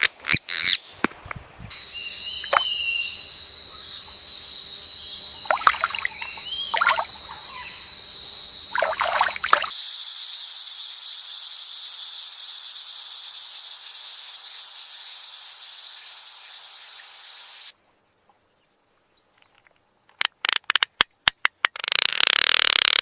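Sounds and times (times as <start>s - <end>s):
high-pitched hiss: 1.7s - 17.8s.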